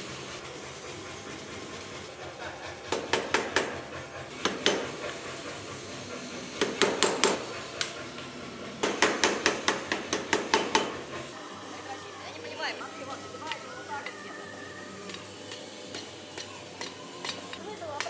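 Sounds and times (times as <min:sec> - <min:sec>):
hammer striking hot steel on anvil: 0:02.9 - 0:05.3, 0:06.5 - 0:11.2, 0:15.1 - 0:18.0.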